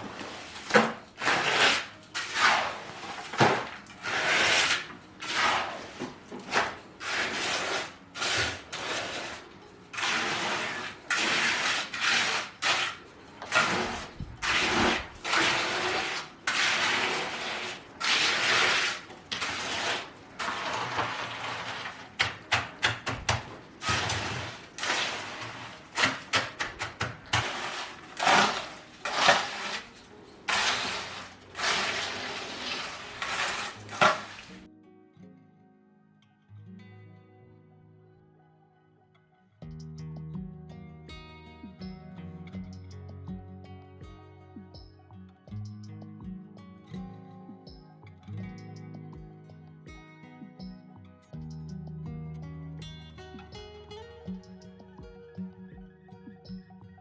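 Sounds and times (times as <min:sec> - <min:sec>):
scraping strokes on cement: 0:00.0 - 0:34.7.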